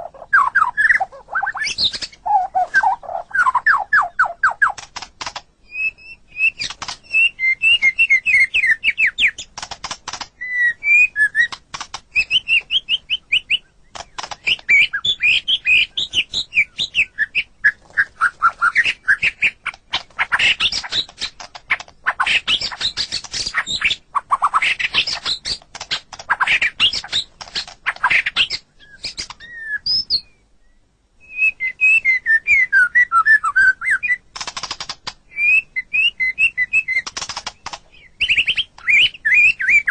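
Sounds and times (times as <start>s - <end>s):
bird singing whistled phrases: 0.2s - 4.8s, 5.7s - 9.4s, 10.4s - 11.6s, 12.2s - 13.7s, 14.4s - 19.6s, 28.1s - 34.2s, 35.3s - 37.1s, 38.0s - 39.9s
bird clicking rattles: 4.7s - 5.5s, 6.6s - 7.0s, 9.4s - 10.4s, 11.5s - 12.2s, 13.9s - 14.7s, 25.0s - 28.0s, 34.4s - 35.2s, 37.0s - 38.9s.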